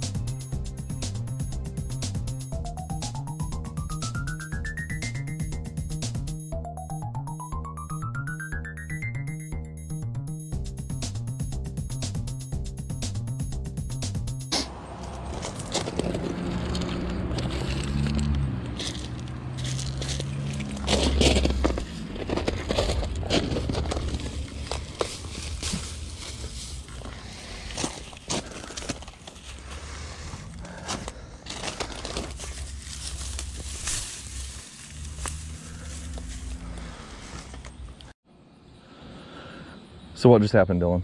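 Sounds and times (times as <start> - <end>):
car engine running: 14.7 - 27.1, 29.4 - 37.8
low rumble: 14.8 - 27.8
roots tearing loose: 15.0 - 37.9
weeds pulled from gravel crackling: 15.0 - 37.9
leaves and stems rustling: 15.0 - 38.1.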